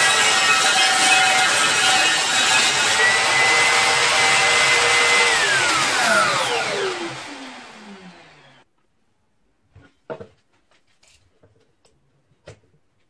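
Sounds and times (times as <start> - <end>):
power tool motor whining: 0.0 - 8.6.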